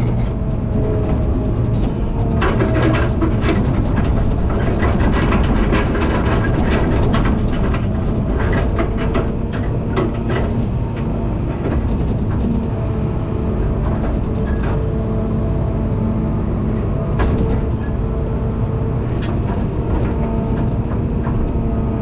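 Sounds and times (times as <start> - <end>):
tractor engine running: 0.0 - 22.0
metallic rattling and clanking: 1.0 - 10.8.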